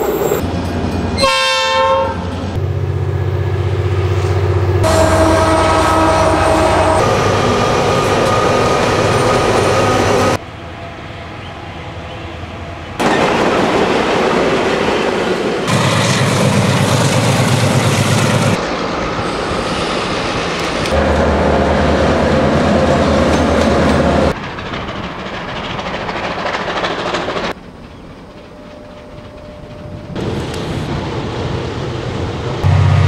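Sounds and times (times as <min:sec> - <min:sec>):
steam locomotive working: 0:00.0 - 0:10.4, 0:12.9 - 0:33.0
diesel locomotive engine drone: 0:00.0 - 0:33.0
wheels clacking over rail joints: 0:22.5 - 0:31.2.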